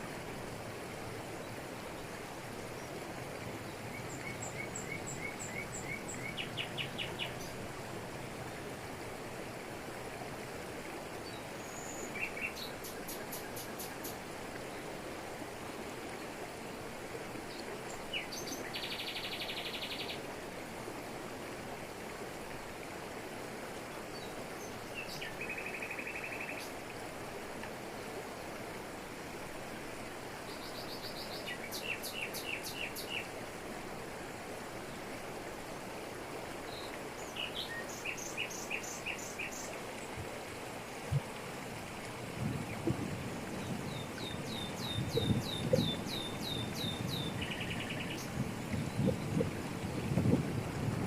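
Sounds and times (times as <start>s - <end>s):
forest birds calling: 3.7s - 7.6s, 17.5s - 20.2s, 24.2s - 26.7s, 30.5s - 33.3s, 36.7s - 40.1s, 43.5s - 49.4s
waterfall rushing over rocks: 19.8s - 51.0s.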